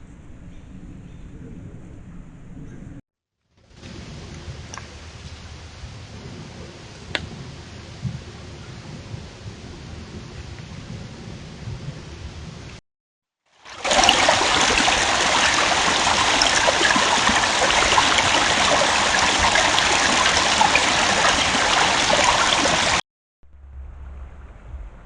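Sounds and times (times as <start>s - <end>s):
water rushing: 13.6s - 23.0s.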